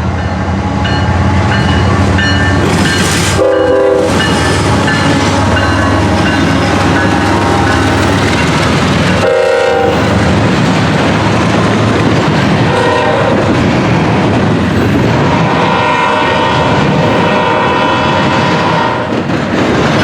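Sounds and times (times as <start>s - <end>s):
freight train rumble and rail clatter: 0.0s - 20.0s
train horn: 3.3s - 8.0s, 9.2s - 10.3s, 12.7s - 13.5s, 15.2s - 19.2s.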